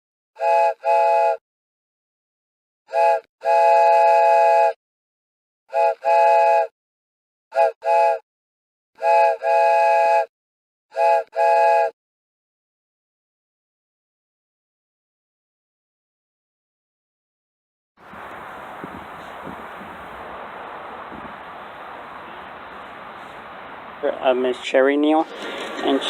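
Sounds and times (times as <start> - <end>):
chime train whistle blasts: 2.9 - 4.8, 18.1 - 24.6.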